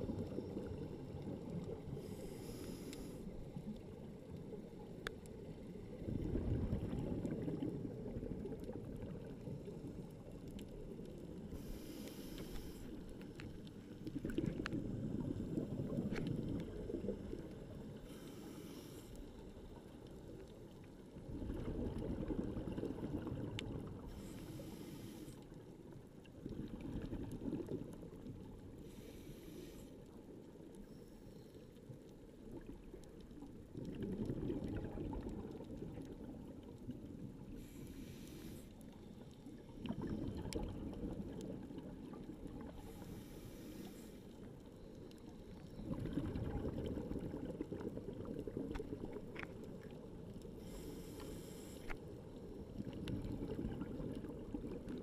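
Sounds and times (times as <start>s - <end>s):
regulator inhale hiss: 1.9s - 3.6s, 11.5s - 13.3s, 17.9s - 19.5s, 24.1s - 25.6s, 28.8s - 30.1s, 37.5s - 39.2s, 42.7s - 44.5s, 50.5s - 52.0s
exhaled bubbles gushing underwater: 3.4s - 11.8s, 13.9s - 18.0s, 19.8s - 24.1s, 26.0s - 28.7s, 32.4s - 37.6s, 39.2s - 43.2s, 44.8s - 50.8s, 52.2s - 55.0s.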